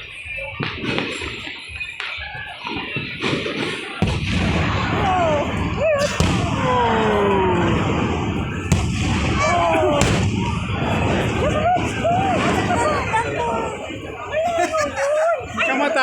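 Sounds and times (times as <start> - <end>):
firework bangs: 0.0 - 16.0
deep rumble of shells bursting: 4.0 - 14.0.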